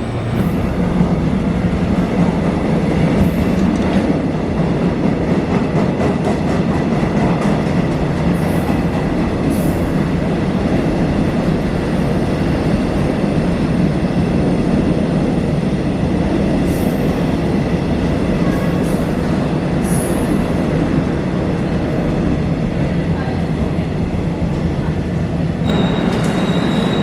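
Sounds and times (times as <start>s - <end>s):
train rumble: 0.0s - 27.0s
train wheels squeaking: 25.7s - 27.0s.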